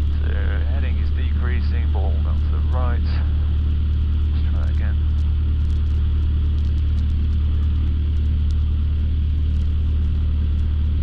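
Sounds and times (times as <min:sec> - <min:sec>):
aircraft piston engine droning: 0:00.0 - 0:11.0.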